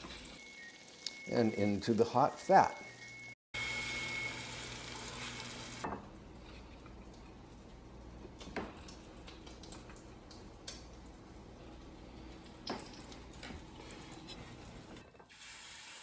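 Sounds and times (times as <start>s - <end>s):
cutlets sizzling in pan: 3.6s - 6.7s.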